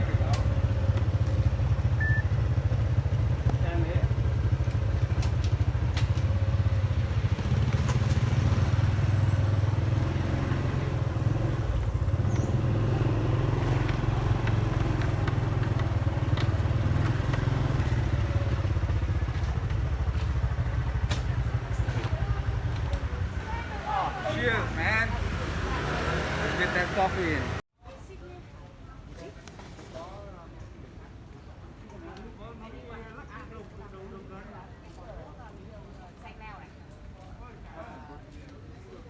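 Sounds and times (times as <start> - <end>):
motorbike engine rumbling: 0.0 - 27.6.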